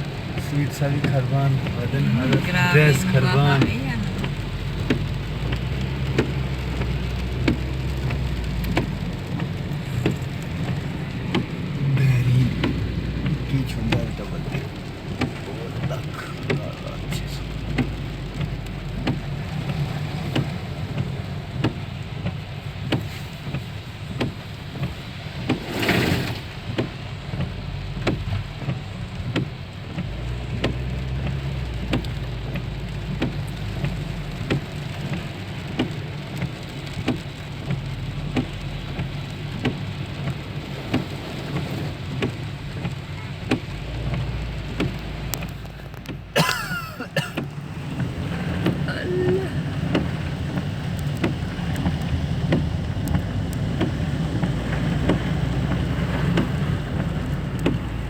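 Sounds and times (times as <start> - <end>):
steady low rumble: 0.0 - 19.9
raindrops ticking on a vehicle: 0.0 - 58.0.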